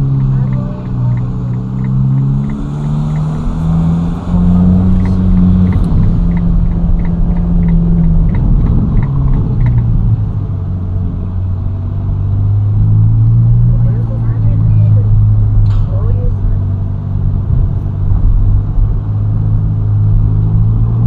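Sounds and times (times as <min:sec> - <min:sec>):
light ticking: 0:00.0 - 0:10.4
car engine accelerating: 0:00.0 - 0:21.0.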